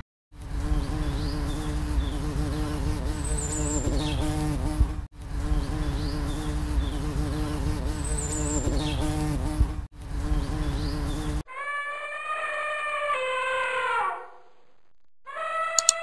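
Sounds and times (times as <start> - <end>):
honeybees buzzing: 0.4 - 11.4.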